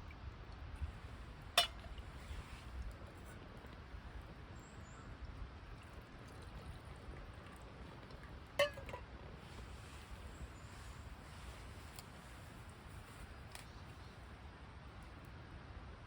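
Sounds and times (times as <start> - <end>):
faint steady background noise: 0.0 - 16.0
metal cookware clinking: 8.6 - 9.0.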